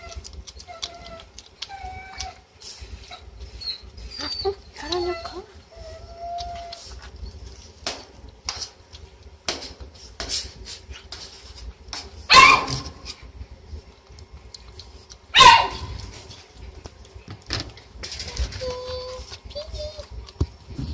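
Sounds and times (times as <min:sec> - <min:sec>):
puppy eating from bowl: 0:00.0 - 0:20.9
puppy barking: 0:12.3 - 0:13.0, 0:15.4 - 0:16.0.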